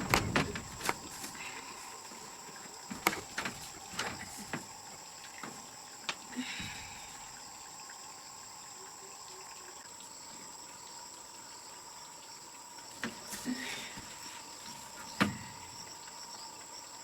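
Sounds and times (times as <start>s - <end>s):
light knocks: 0.0s - 1.8s, 2.9s - 4.8s
insects droning: 0.0s - 17.0s.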